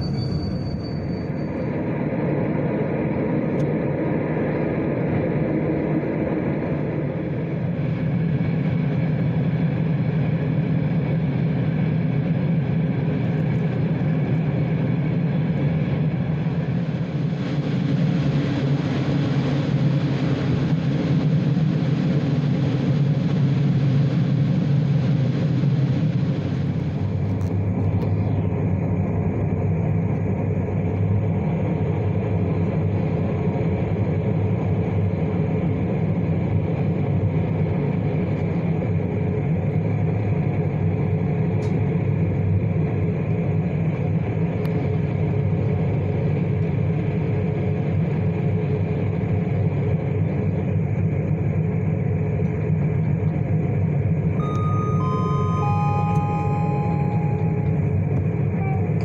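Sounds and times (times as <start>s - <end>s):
train running: 0.0s - 1.9s, 54.0s - 59.0s.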